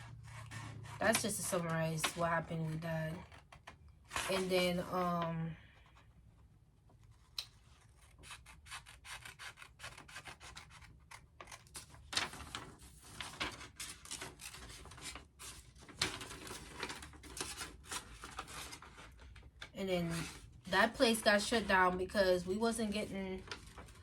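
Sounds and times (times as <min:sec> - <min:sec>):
paper rubbing and scraping: 0:00.0 - 0:02.3, 0:07.8 - 0:20.5.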